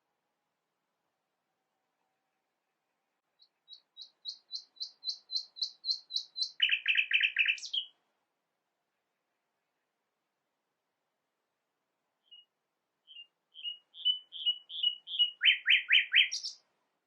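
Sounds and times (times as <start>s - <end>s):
songbird singing: 1.9s - 8.0s, 12.2s - 16.7s.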